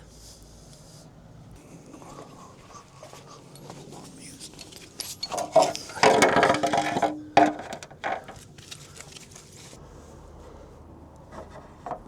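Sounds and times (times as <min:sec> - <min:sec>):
wrench metal knocks and clicks: 0:04.5 - 0:08.4.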